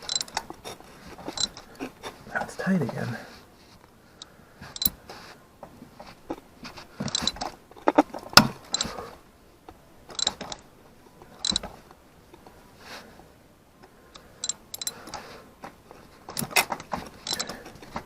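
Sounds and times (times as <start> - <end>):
socket ratchet clicking: 0.0 - 0.4, 4.8 - 5.0, 7.1 - 7.4, 10.1 - 10.6, 11.4 - 11.6, 14.2 - 15.2, 17.2 - 17.5.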